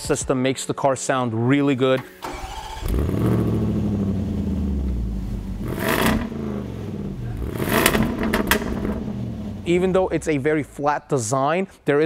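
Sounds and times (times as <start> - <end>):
car engine idling and revving: 2.4 - 10.7.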